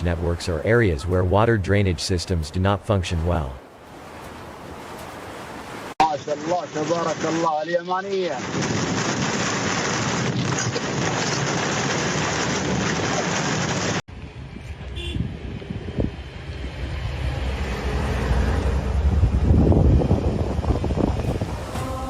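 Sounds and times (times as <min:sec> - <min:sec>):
heavy rain pouring: 0:06.1 - 0:14.0
wind rumbling on microphone: 0:08.2 - 0:22.0.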